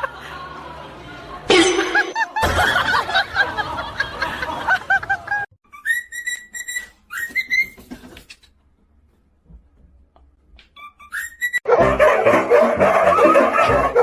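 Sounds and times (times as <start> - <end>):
background noise: 0.0 - 11.6
clear whistled notes: 5.7 - 7.8, 10.8 - 11.7.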